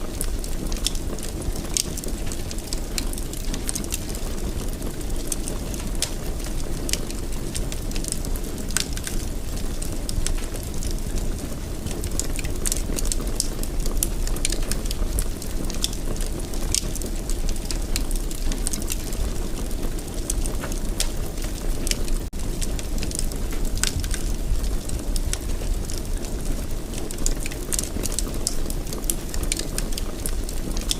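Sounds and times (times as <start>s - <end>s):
wood fire burning: 0.0s - 30.9s.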